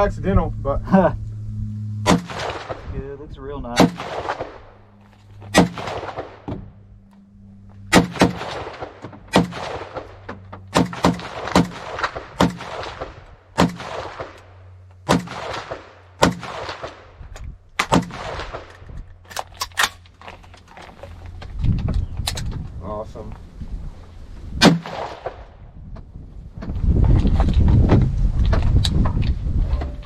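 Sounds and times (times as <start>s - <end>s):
echoing gunshots: 2.0s - 3.0s, 3.7s - 6.7s, 7.9s - 17.2s, 17.8s - 18.8s, 24.6s - 25.6s.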